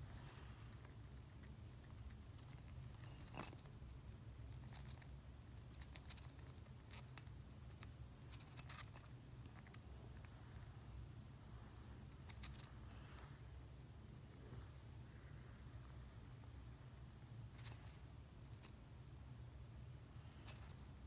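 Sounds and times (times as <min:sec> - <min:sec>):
low steady hum: 0:00.0 - 0:21.0
hamster gnawing clicks: 0:00.7 - 0:10.3.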